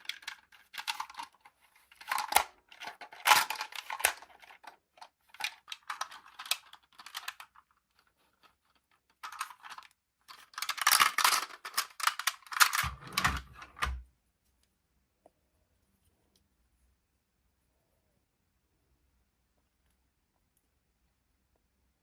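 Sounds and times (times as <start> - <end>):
toy packaging crackling: 0.0 - 13.4.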